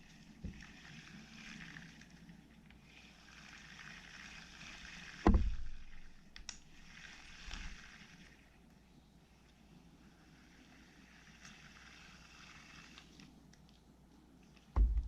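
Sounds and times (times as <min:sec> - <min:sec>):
fishing reel whirring: 0:00.0 - 0:08.7, 0:09.3 - 0:13.4
loud knock: 0:14.8 - 0:15.0.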